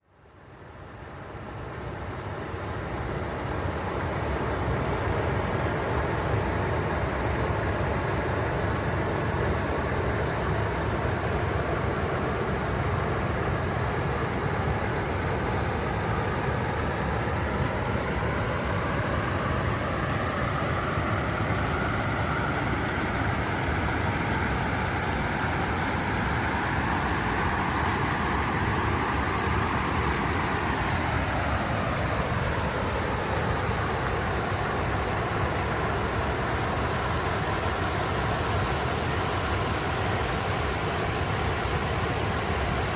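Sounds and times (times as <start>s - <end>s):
water rushing over rocks: 8.6s - 42.9s.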